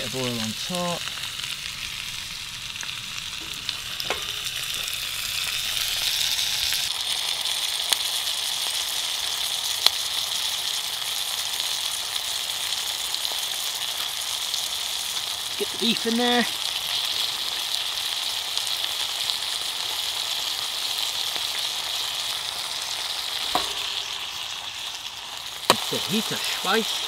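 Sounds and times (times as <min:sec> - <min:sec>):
vegetables sizzling in a wok: 0:00.0 - 0:27.0.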